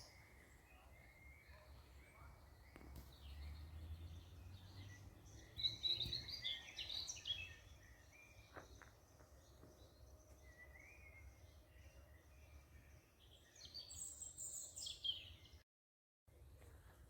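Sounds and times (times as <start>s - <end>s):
small birds chirping: 0.0s - 15.6s.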